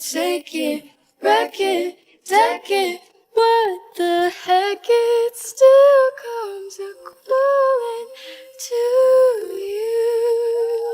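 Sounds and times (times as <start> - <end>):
woman singing unaccompanied: 2.3 - 10.9.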